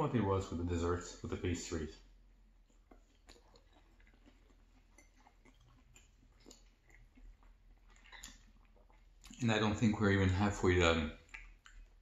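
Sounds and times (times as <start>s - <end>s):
person chewing pasta: 2.0s - 9.9s, 11.0s - 12.0s.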